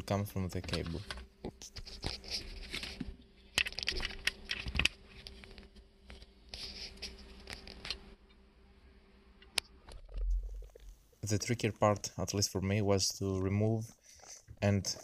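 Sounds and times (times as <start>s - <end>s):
faint steady hum: 0.0s - 15.0s
rustling and scraping: 0.5s - 8.2s.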